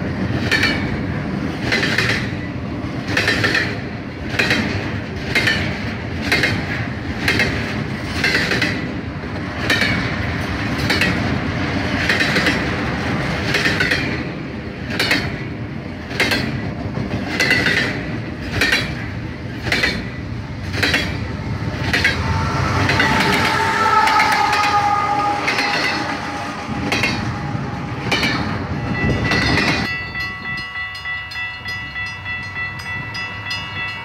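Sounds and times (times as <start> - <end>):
train rumble: 0.0 - 34.0
train wheels clattering over rail joints: 0.2 - 22.3.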